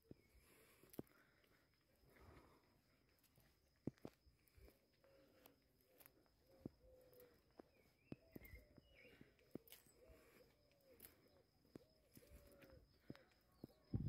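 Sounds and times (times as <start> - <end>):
faint bird calls: 4.5 - 14.0
light footstep clicks: 5.4 - 13.9.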